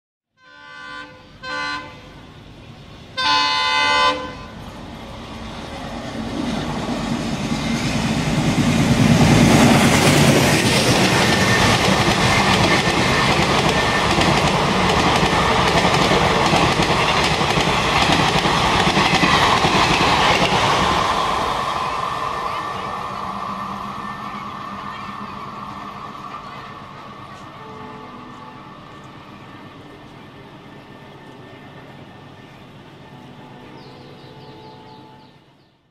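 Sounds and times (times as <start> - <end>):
locomotive horn blasts: 0.4 - 2.2, 3.2 - 4.6, 27.6 - 28.7
train running past: 0.4 - 35.9.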